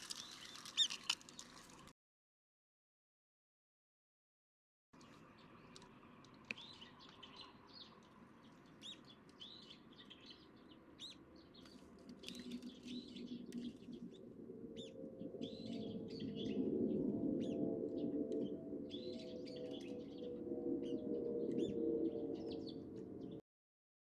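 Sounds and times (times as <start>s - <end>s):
birds chirping: 5.0s - 23.4s
low hum: 11.6s - 23.4s.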